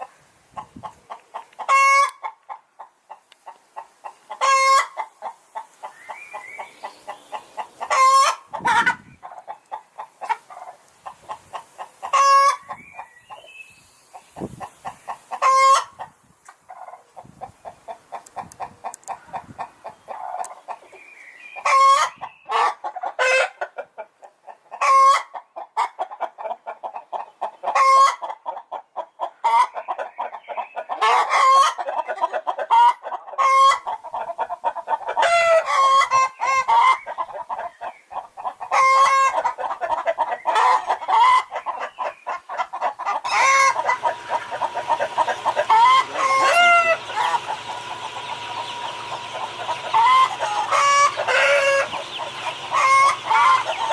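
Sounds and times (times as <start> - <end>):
chickens clucking: 0.0 - 53.9
loud chicken squawking: 1.6 - 2.2, 4.4 - 5.1, 7.6 - 9.2, 15.4 - 16.1, 31.0 - 53.9
faint steady hum: 43.3 - 53.9.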